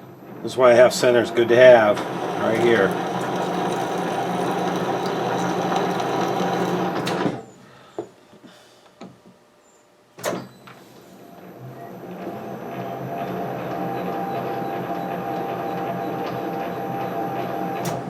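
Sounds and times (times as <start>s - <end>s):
metal lathe running: 1.1s - 7.4s.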